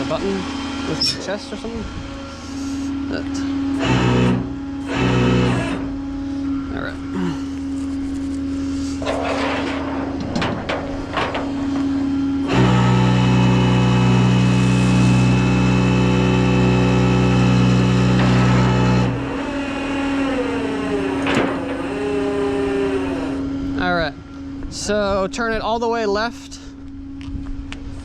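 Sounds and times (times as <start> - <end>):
truck engine running: 0.0 - 24.6
hydraulic pump drone: 0.0 - 25.6
metal tow equipment clanking: 9.0 - 23.4.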